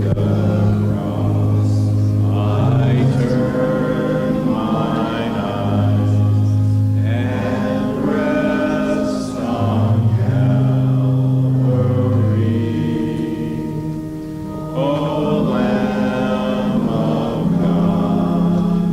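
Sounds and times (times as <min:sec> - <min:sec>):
congregation singing a hymn: 0:00.0 - 0:18.9
sustained bass line: 0:00.0 - 0:18.9.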